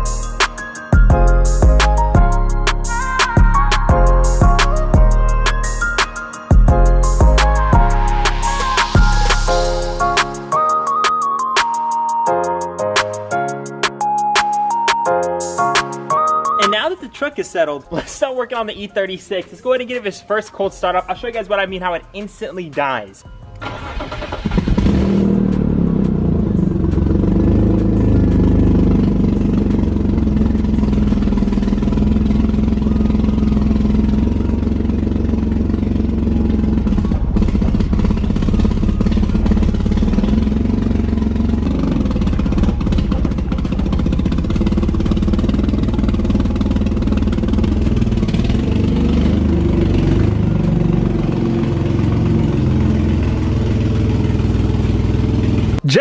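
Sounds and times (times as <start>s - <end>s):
car engine idling unevenly: 23.6s - 56.0s.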